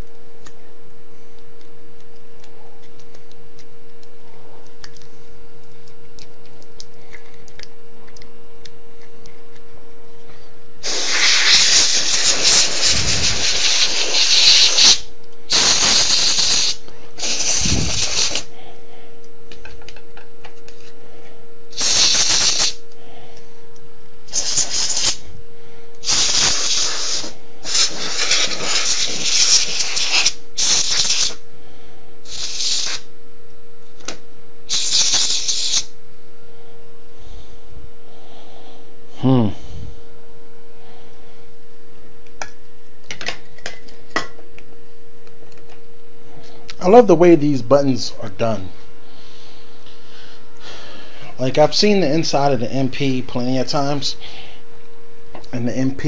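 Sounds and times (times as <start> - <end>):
compressed air hissing blasts: 10.8 - 18.5, 21.7 - 22.8, 24.3 - 25.2, 26.0 - 31.4, 32.2 - 33.1, 34.7 - 36.0.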